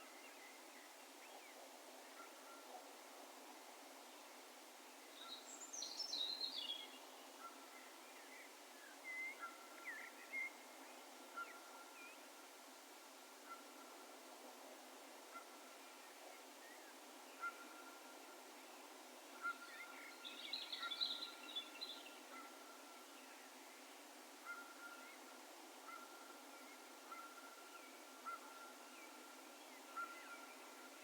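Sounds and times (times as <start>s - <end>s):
faint outdoor hiss: 0.0s - 31.0s
distant bird calls: 24.4s - 31.0s.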